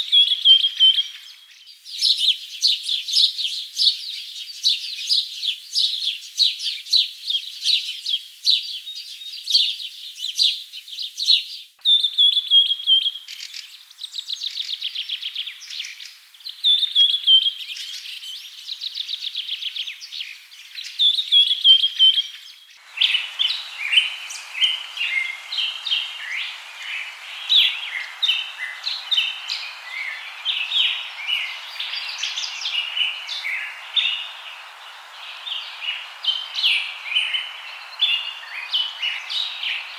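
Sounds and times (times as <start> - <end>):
birds chirping: 20.8 - 39.9
fast bird trills: 22.8 - 39.9
steady hiss: 22.8 - 39.9.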